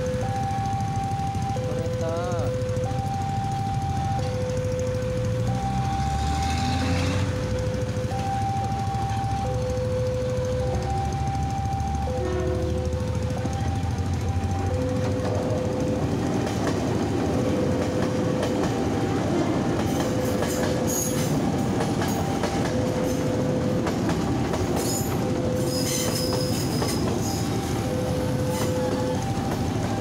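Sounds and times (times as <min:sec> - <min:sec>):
train wheels rumbling on rail: 0:00.0 - 0:30.0
two-tone level crossing siren: 0:00.0 - 0:30.0
high wheel squeals: 0:24.8 - 0:30.0.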